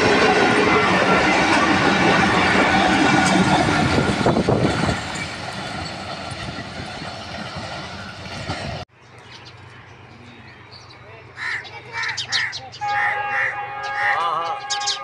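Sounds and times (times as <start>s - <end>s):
train wheels on rail: 0.0s - 9.7s.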